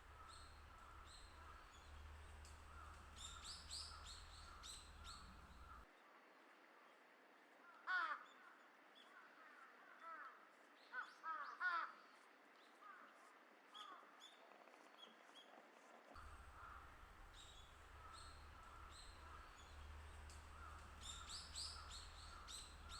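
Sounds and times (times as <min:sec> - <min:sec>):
crow cawing: 0:00.0 - 0:05.8, 0:16.2 - 0:22.9
small birds chirping: 0:00.0 - 0:05.8, 0:16.2 - 0:22.9.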